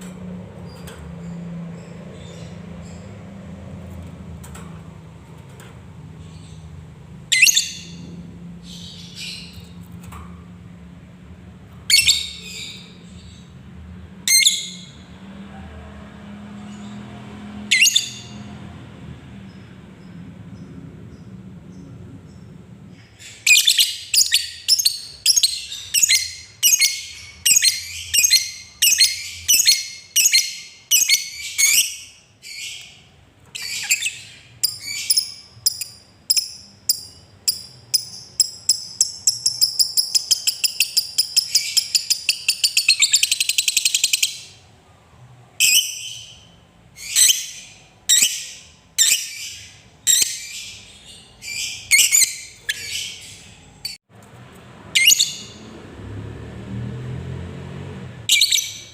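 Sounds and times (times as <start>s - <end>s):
lovebird chirping and trilling: 7.3s - 9.8s, 11.8s - 13.5s, 14.3s - 15.0s, 17.7s - 18.4s, 23.1s - 33.0s, 33.6s - 44.6s, 45.6s - 54.0s, 55.0s - 55.6s, 58.3s - 58.9s.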